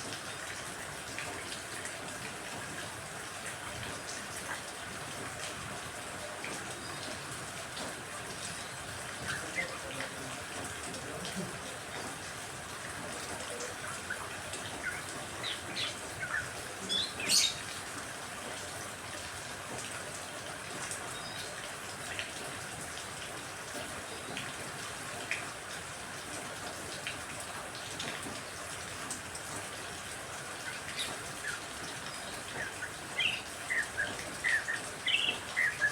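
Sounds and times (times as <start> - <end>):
steady rain: 0.0 - 35.9
small birds chirping: 13.5 - 17.8, 30.6 - 35.9.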